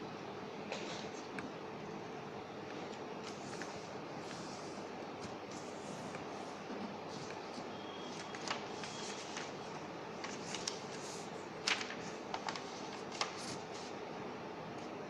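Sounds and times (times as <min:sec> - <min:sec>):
paper folding and crackling: 0:07.1 - 0:13.9.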